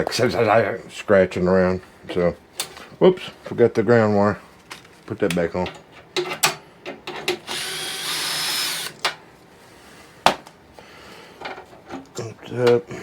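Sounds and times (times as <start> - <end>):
power drill driving a screw: 7.4 - 9.0.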